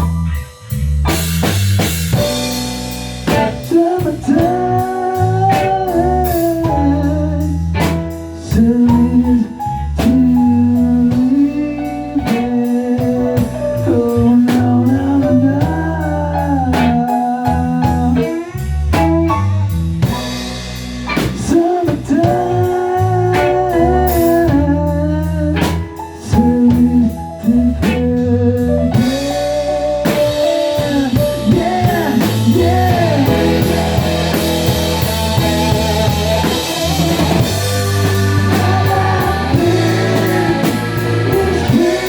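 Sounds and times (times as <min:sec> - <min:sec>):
drum kit hits: 0:00.0 - 0:07.0, 0:07.7 - 0:09.2, 0:16.7 - 0:22.6, 0:29.0 - 0:42.0
bass line: 0:00.0 - 0:42.0
bending lead melody: 0:00.0 - 0:42.0
blues-rock band playing: 0:00.0 - 0:42.0
guitar: 0:00.0 - 0:42.0.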